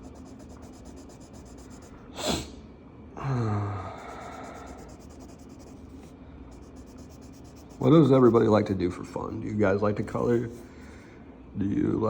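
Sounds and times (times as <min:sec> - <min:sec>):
marker scratching on paper: 0:00.0 - 0:02.0, 0:04.0 - 0:08.7.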